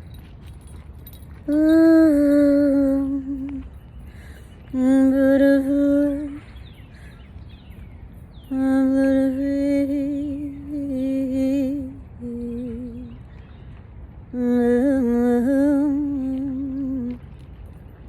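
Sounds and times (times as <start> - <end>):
woman humming a slow melody: 1.4 - 3.9, 4.6 - 6.6, 8.4 - 13.3, 14.3 - 17.3.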